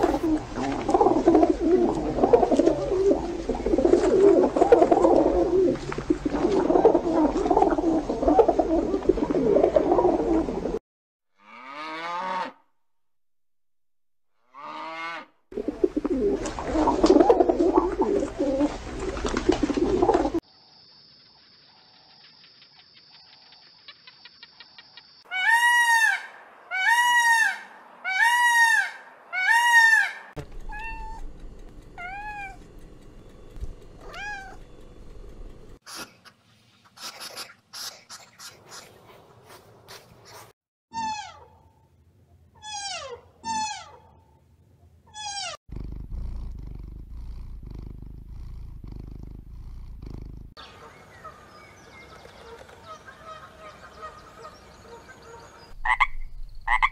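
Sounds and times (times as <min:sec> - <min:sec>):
peacock calling: 0:23.8 - 0:35.1, 0:50.6 - 0:56.9.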